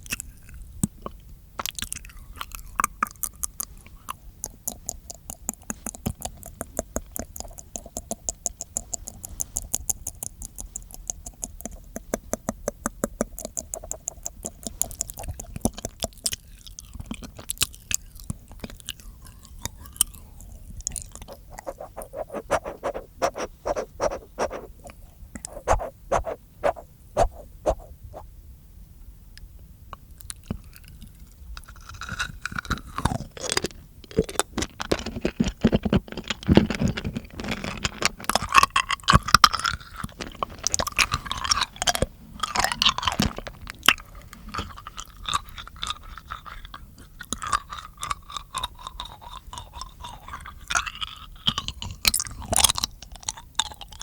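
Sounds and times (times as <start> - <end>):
wet mouth clicking and smacking: 4.4 - 20.2, 20.8 - 28.2, 39.1 - 54.0.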